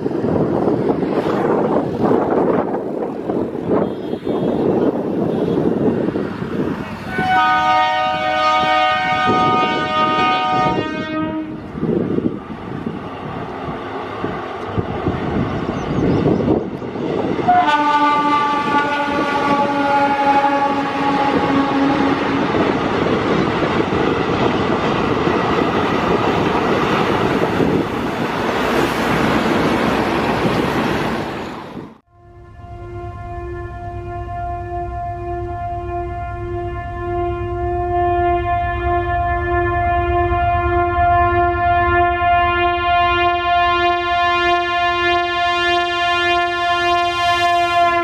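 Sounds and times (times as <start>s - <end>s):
train wheels on rails: 0.0s - 10.8s, 11.6s - 32.0s
train horn blasts: 3.6s - 6.1s, 7.0s - 11.9s, 17.4s - 22.8s, 32.0s - 48.0s.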